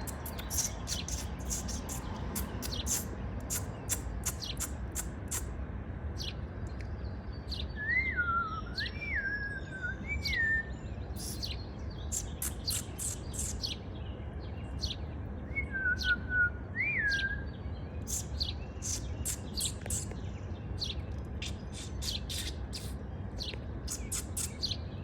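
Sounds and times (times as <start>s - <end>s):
songbird chirping: 0.0s - 5.5s, 6.2s - 25.0s.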